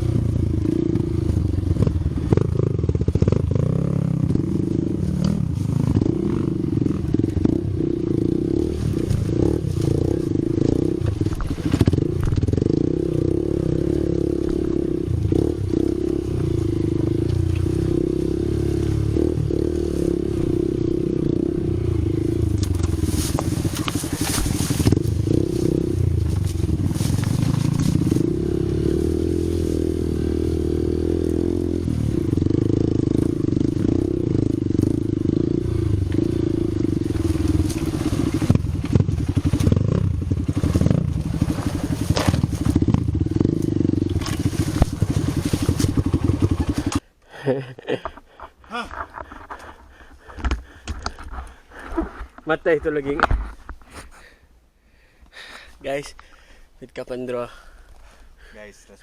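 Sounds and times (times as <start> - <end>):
vehicle engine running: 0.0 - 47.1.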